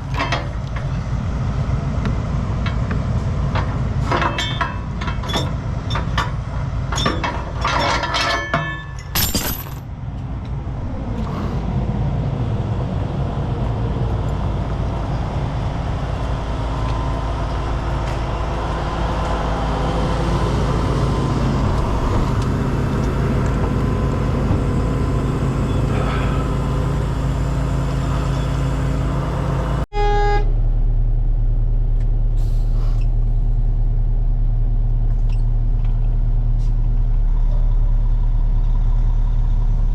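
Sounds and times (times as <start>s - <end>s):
low engine hum: 0.0s - 7.7s, 9.1s - 39.9s
metal chains clinking: 7.7s - 9.9s
diesel truck engine running: 9.9s - 39.9s.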